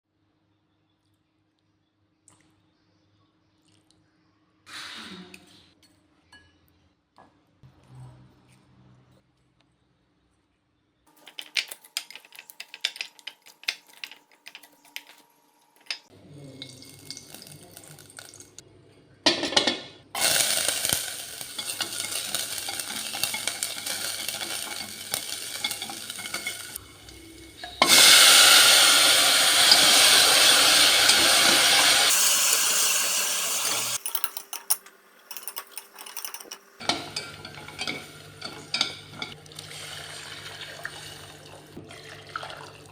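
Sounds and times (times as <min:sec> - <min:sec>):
utensils clinking against a pot: 0:11.1 - 0:18.6, 0:19.3 - 0:39.4
steady cooking hiss: 0:19.5 - 0:41.8.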